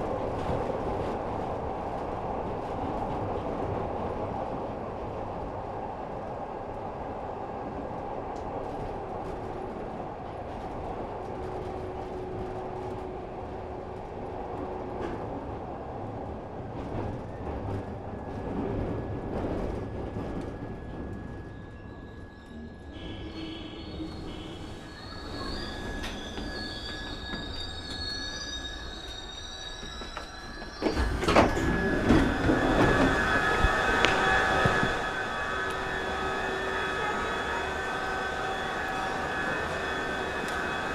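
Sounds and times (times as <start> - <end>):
subway train rumbling in tunnel: 0.0 - 40.9
wheels squealing: 21.2 - 40.9.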